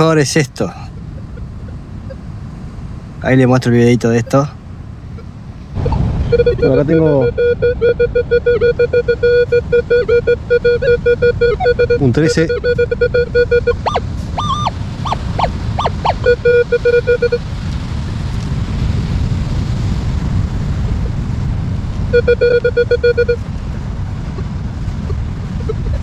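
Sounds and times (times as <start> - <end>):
metal detector tones: 5.2 - 17.4, 22.2 - 23.4.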